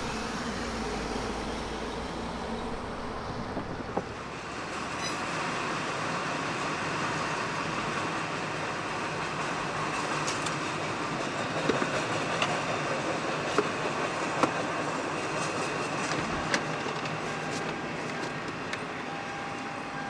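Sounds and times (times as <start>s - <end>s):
train wheels rumbling on rails: 0.0s - 20.0s
clicks and clanks of train cars: 3.4s - 20.0s
train wheel squeal: 4.7s - 5.6s, 9.0s - 20.0s.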